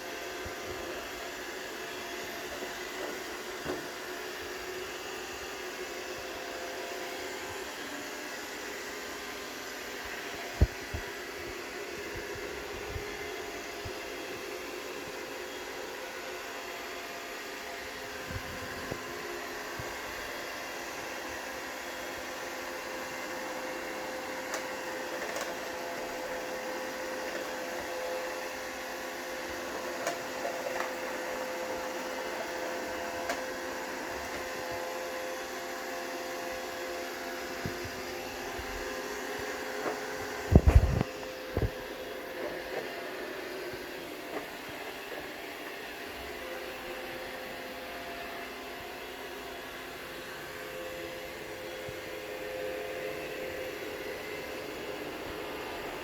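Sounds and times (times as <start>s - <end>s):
robot vacuum motor hum: 0.0s - 56.0s.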